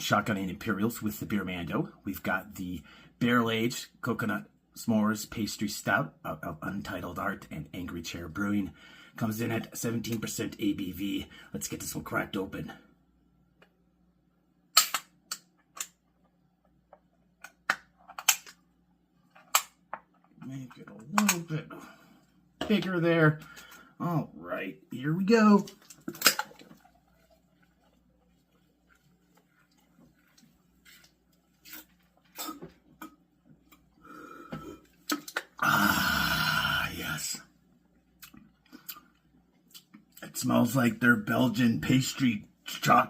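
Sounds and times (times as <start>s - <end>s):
beer can clicking and tapping: 25.7s - 27.0s
person gulping beer: 31.7s - 36.9s.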